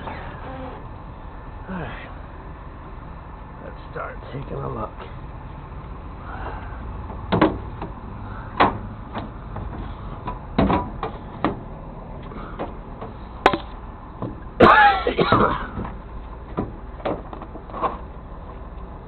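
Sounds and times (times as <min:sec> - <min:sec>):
low steady rumble: 0:00.0 - 0:19.0
knocks and clunks: 0:07.0 - 0:18.2.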